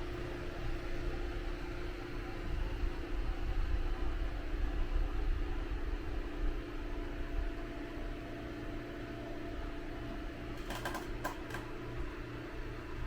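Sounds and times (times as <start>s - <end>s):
low mechanical hum: 0.0s - 13.0s
sharp clicks: 10.6s - 11.7s.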